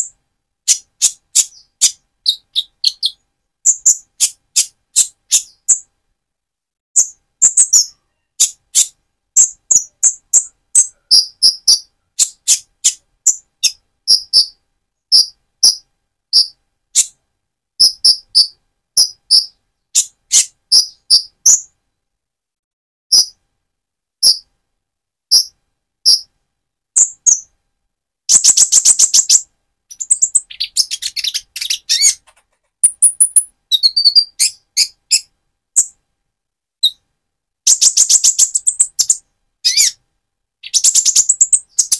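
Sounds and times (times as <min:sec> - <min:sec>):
bird twittering song: 0:00.0 - 0:05.9, 0:07.0 - 0:17.2, 0:17.8 - 0:21.8, 0:24.2 - 0:24.5, 0:25.3 - 0:26.3, 0:27.0 - 0:27.5, 0:28.3 - 0:36.0, 0:36.8 - 0:37.0, 0:37.7 - 0:40.0, 0:40.6 - 0:41.9
bird high-pitched chips: 0:00.7 - 0:05.8, 0:07.0 - 0:15.8, 0:17.8 - 0:21.7, 0:24.2 - 0:24.5, 0:28.3 - 0:35.9, 0:37.7 - 0:40.0, 0:40.6 - 0:41.9.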